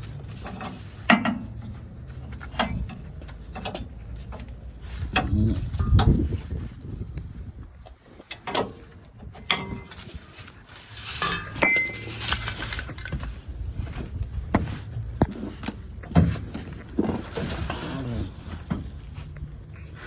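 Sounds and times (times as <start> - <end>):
metal clinks and clanks: 8.3 - 13.9.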